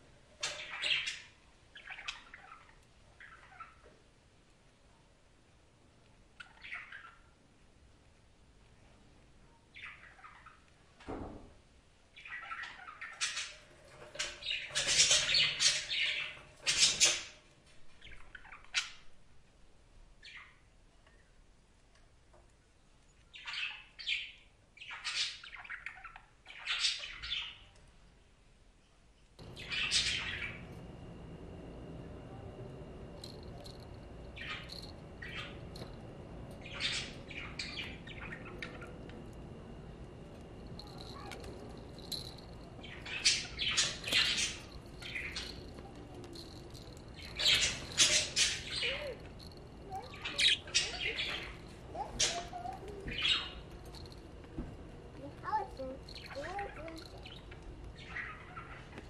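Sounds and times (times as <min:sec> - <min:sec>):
budgerigars chattering and squawking: 0:12.4 - 0:17.2, 0:29.5 - 0:30.7, 0:36.6 - 0:39.0, 0:42.2 - 0:45.6, 0:47.2 - 0:49.2, 0:49.9 - 0:53.6.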